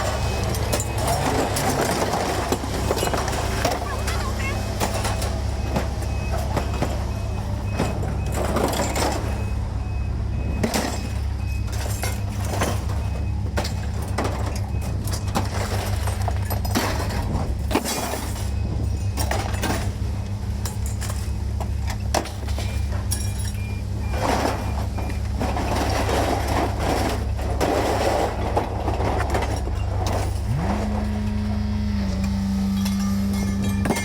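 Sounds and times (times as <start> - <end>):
road noise: 0.0 - 34.0
truck engine running: 0.0 - 34.0
knocks and rattles: 32.1 - 34.0.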